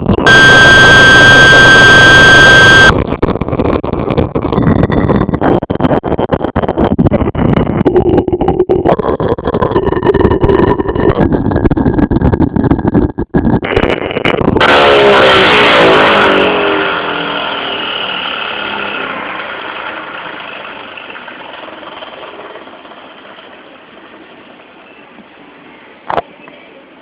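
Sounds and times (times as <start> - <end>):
electric motor rattling buzz: 0.3 - 2.9, 14.6 - 22.6.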